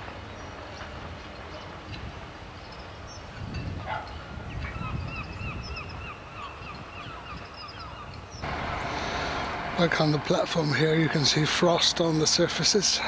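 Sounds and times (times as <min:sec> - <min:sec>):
freight train rumbling: 0:08.4 - 0:13.0.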